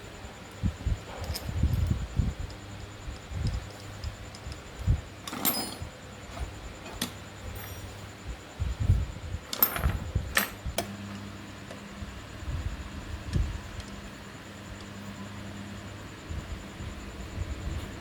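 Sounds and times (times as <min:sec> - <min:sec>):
faint steady hum: 0:00.0 - 0:18.0
metal tools clinking: 0:05.2 - 0:08.0, 0:09.5 - 0:10.9.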